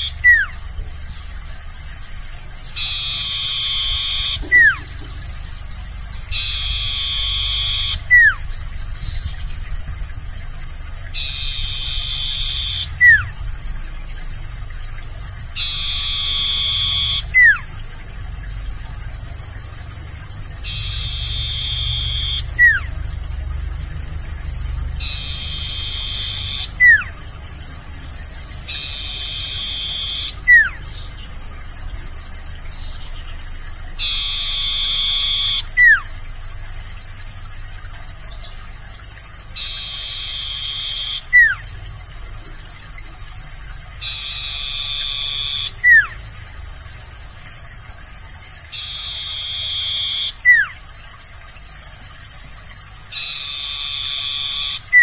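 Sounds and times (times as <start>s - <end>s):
songbird singing trilled phrase: 2.6s - 5.3s, 6.2s - 9.4s, 11.1s - 13.4s, 15.6s - 17.7s, 20.6s - 22.9s, 24.9s - 27.2s, 28.4s - 31.4s, 34.0s - 36.1s, 39.6s - 41.8s, 44.0s - 46.2s, 48.7s - 50.7s, 53.1s - 55.0s.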